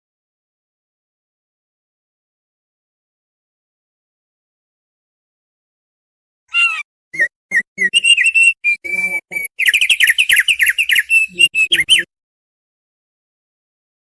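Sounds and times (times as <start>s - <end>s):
bird chattering notes: 6.5s - 12.1s
bird singing whistled notes: 6.6s - 12.1s.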